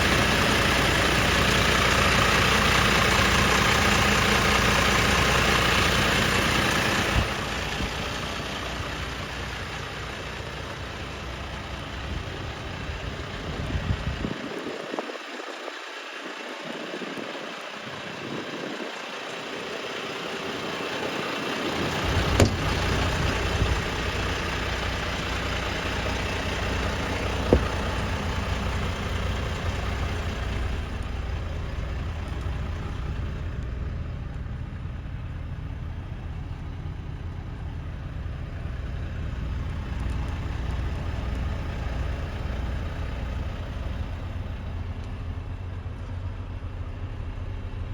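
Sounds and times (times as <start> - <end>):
diesel engine idling: 0.0 - 47.9.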